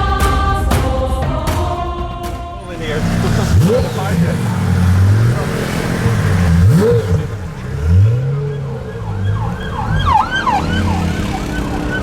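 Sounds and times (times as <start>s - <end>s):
car engine revving: 2.7s - 12.0s
emergency siren wailing: 7.8s - 12.0s.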